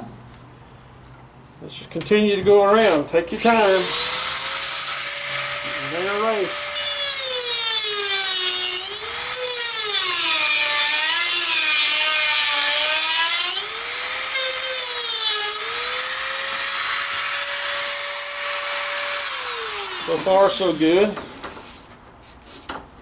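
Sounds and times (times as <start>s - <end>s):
rotary tool cutting whine: 3.5s - 10.4s, 13.4s - 21.6s.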